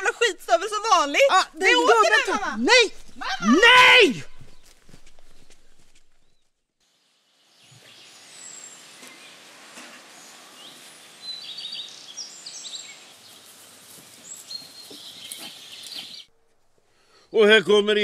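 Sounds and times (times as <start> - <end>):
small birds chirping: 0.0 - 6.4, 10.2 - 16.3
outdoor ambient hiss: 0.0 - 18.0.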